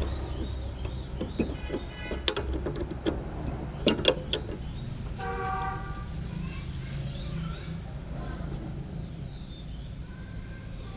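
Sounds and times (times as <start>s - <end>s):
metal spanner clinking: 0.0s - 5.3s.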